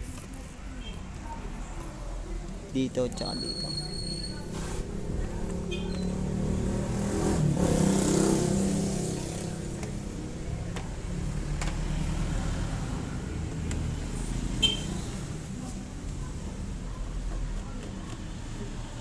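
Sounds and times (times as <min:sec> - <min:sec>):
passing vehicle engine: 0:01.7 - 0:16.8.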